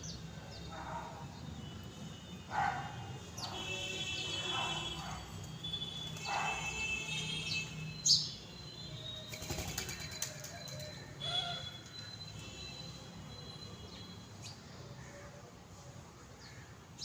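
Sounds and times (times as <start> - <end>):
small birds chirping: 7.4 - 12.8
wingbeats flurry: 9.3 - 10.9.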